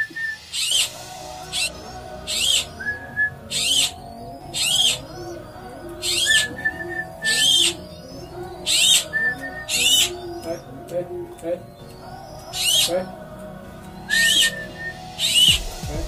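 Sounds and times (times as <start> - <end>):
loud high bird call: 0.0 - 10.7, 14.0 - 15.7
softer lower bird calls: 0.0 - 13.3, 14.0 - 15.7.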